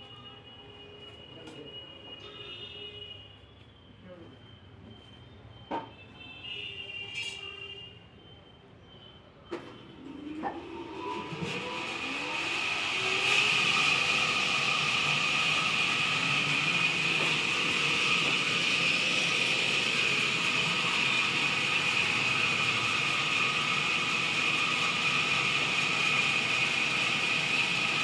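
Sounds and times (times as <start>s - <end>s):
band saw whining: 9.9s - 28.0s.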